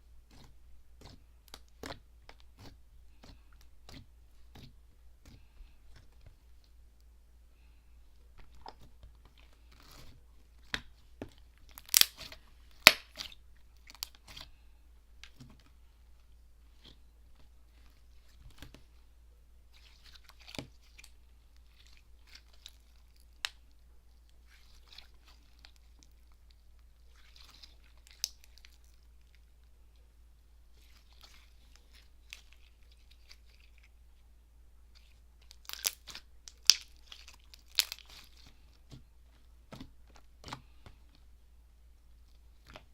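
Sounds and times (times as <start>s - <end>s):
slime crackling: 11.6s - 14.4s, 34.9s - 39.0s
slime clicking and popping: 11.7s - 13.2s.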